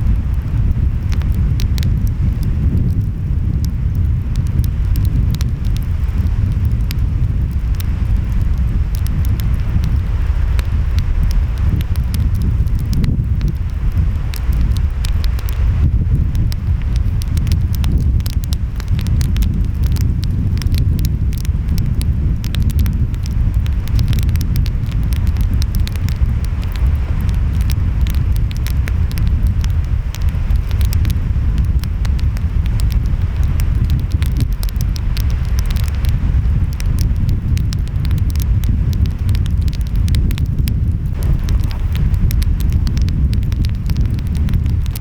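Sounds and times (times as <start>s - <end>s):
wind: 0.0s - 45.0s
wood fire crackling and popping: 0.0s - 45.0s.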